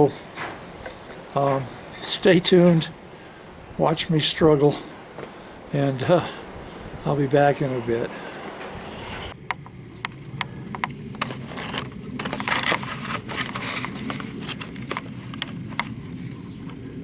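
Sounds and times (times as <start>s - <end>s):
hand tools clicking and scraping: 0.0s - 3.2s, 4.5s - 9.4s, 10.8s - 16.2s
steady low hum: 0.0s - 17.0s.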